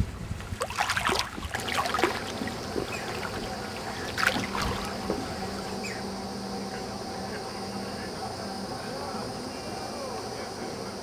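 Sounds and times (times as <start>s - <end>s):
water splashing around kayak: 0.0s - 6.0s
faint steady hum: 0.0s - 11.0s.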